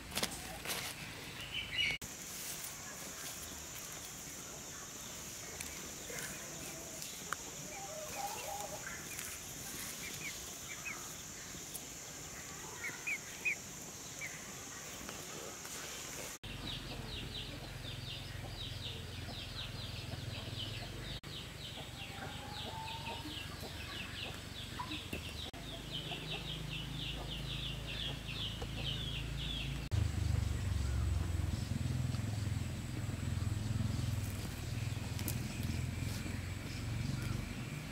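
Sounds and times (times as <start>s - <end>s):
birds chirping: 0.0s - 37.9s
high insect drone: 2.0s - 16.4s.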